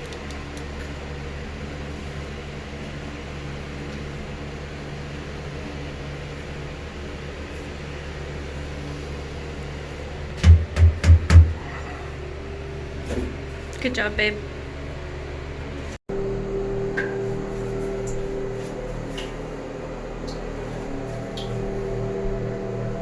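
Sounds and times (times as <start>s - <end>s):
loud knock: 10.4s - 11.6s
machine motor humming: 16.1s - 23.0s.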